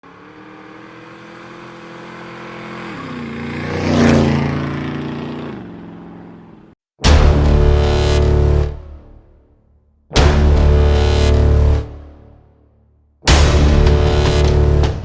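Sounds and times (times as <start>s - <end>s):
motorcycle passing by: 0.0s - 6.8s.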